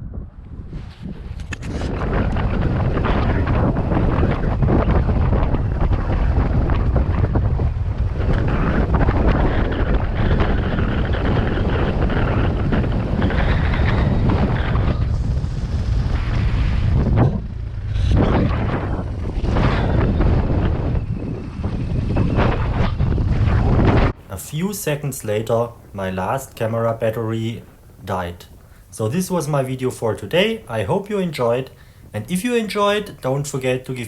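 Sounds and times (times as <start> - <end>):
wind buffeting microphone: 0.0 - 34.0
motorcycle engine running: 2.0 - 24.2.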